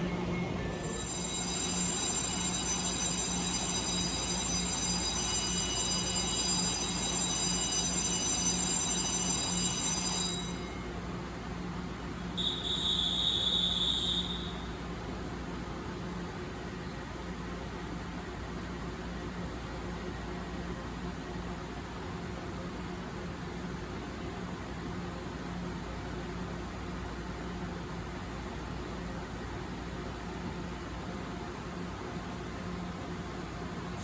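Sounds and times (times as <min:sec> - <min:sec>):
short beep: 0:00.0 - 0:02.2, 0:12.4 - 0:14.8.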